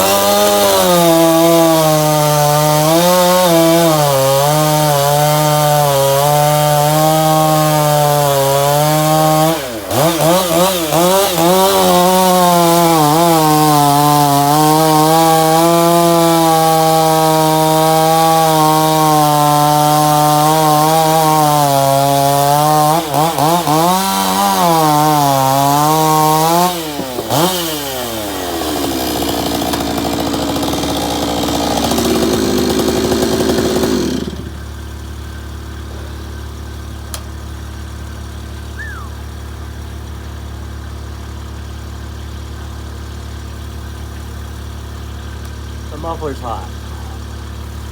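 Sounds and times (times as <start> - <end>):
chainsaw cutting at full throttle: 0.0 - 47.9.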